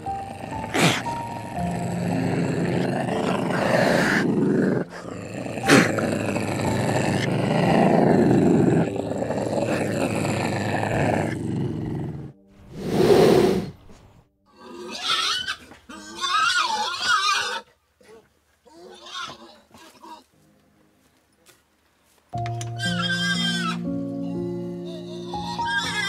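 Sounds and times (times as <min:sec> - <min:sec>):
big cat growling: 0:00.1 - 0:13.8
animal squealing calls: 0:14.6 - 0:17.7, 0:22.8 - 0:26.0.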